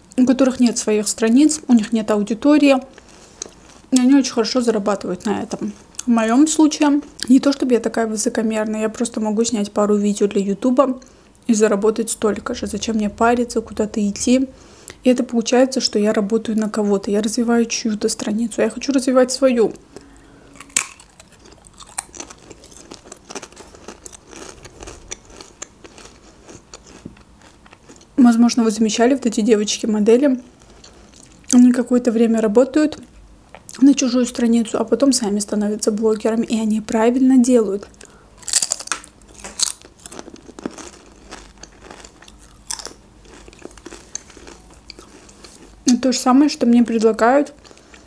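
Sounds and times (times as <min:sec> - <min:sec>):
crunchy chip chewing: 0:20.5 - 0:28.1, 0:38.0 - 0:45.8.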